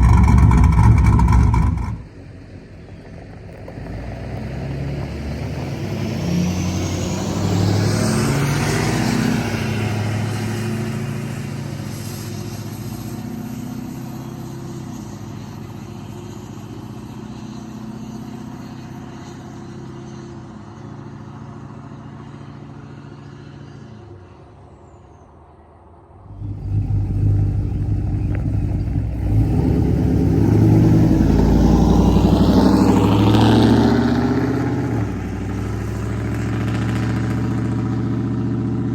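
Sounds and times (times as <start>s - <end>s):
deep pulsing engine: 0.0s - 3.3s, 26.0s - 38.9s
truck exhaust with rising whine: 0.0s - 38.9s.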